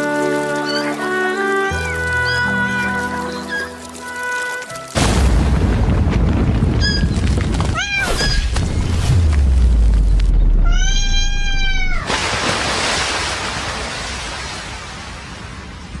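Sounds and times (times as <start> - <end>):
low rumble: 5.3 - 12.1
cat meowing: 7.7 - 8.5, 10.6 - 12.1.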